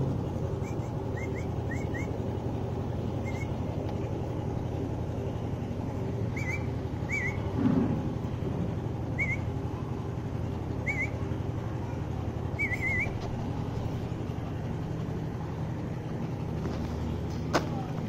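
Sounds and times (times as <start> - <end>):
low outdoor rumble: 0.0 - 18.0
bird chirping: 0.5 - 2.2, 3.1 - 3.7, 6.2 - 7.5, 9.1 - 9.5, 10.8 - 11.2, 12.5 - 13.2.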